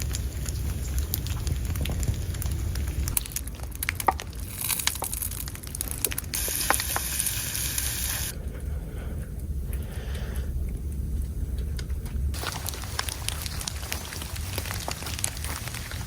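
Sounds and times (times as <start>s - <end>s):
low wind rumble: 0.0s - 3.8s, 7.6s - 16.0s
small ticks and crackles: 0.0s - 8.7s
bright hiss: 6.4s - 8.3s.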